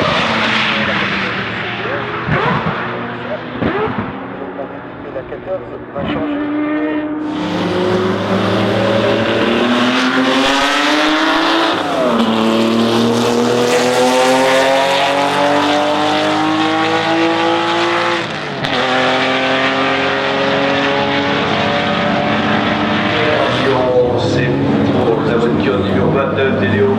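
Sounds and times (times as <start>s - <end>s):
racing car engine accelerating: 0.0s - 26.9s.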